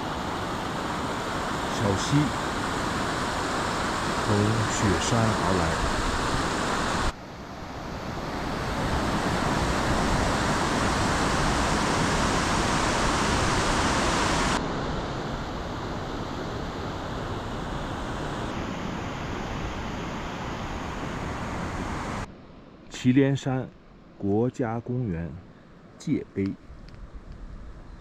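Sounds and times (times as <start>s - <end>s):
mountain stream rushing: 0.0s - 7.2s, 8.1s - 15.8s.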